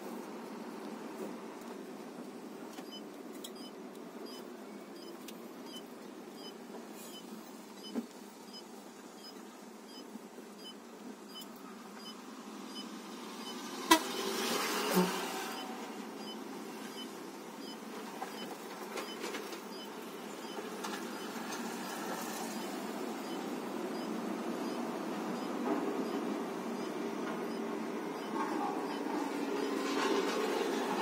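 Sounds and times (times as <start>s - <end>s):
road traffic noise: 0.0s - 31.0s
vehicle passing: 13.0s - 16.1s, 21.1s - 31.0s.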